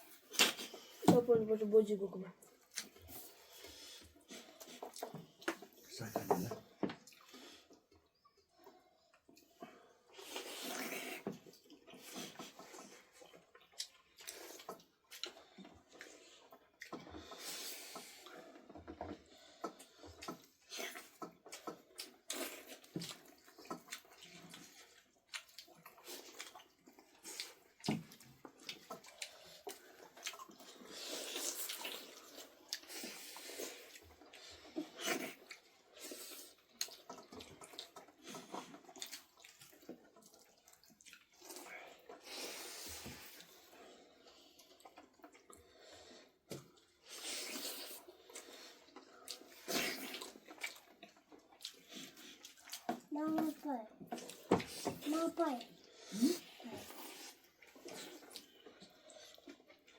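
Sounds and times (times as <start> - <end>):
water splashing and sloshing: 0.0 - 47.1.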